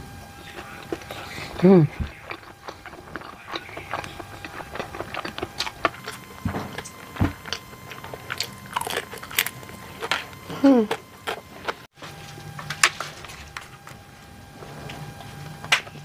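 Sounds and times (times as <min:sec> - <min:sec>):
person chewing food: 0:00.4 - 0:11.9.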